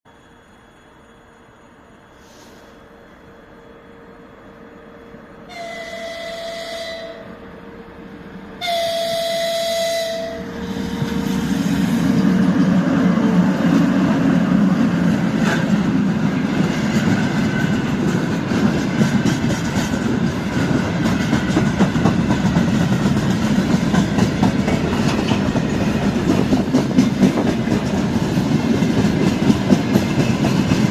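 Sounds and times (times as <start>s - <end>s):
locomotive horn: 5.4s - 7.6s, 8.6s - 11.1s
train wheels rumbling: 5.5s - 30.9s
wagons clickety-clack on rails: 12.0s - 30.9s.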